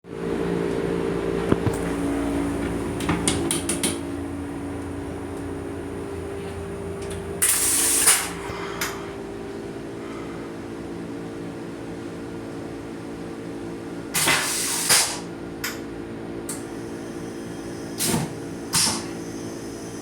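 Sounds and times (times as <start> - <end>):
rail coach mechanical hum: 0.1 - 20.0
sharp clicks and knocks: 3.0 - 4.0.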